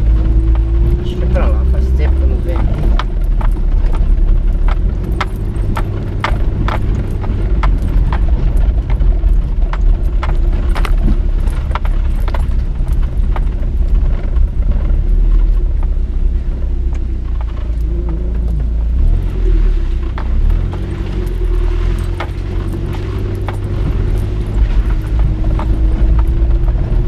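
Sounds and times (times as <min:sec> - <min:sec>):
sharp knocks and rattles: 0:00.0 - 0:16.1, 0:19.0 - 0:27.0
car engine and road drone: 0:00.0 - 0:27.0.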